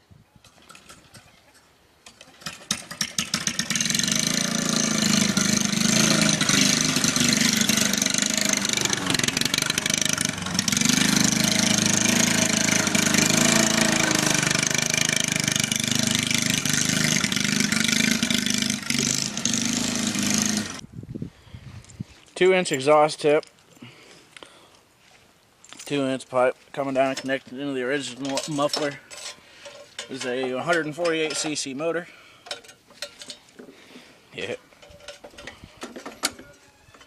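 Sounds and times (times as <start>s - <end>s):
mower engine starting and running: 2.0s - 20.8s.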